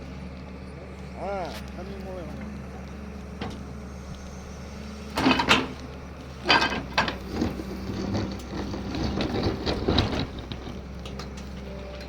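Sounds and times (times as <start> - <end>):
excavator engine running: 0.0 - 12.0
machine rattling and scraping: 3.4 - 12.0.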